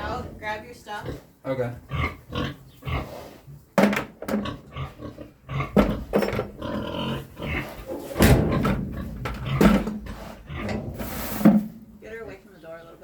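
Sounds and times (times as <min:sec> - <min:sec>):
pig grunting: 0:00.0 - 0:03.5, 0:04.4 - 0:11.6
knocks: 0:08.2 - 0:11.8.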